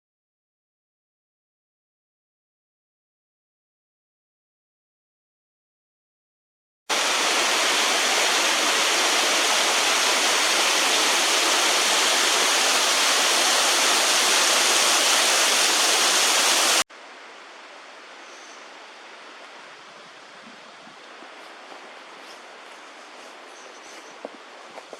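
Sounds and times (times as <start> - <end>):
waterfall pouring: 6.9 - 16.8.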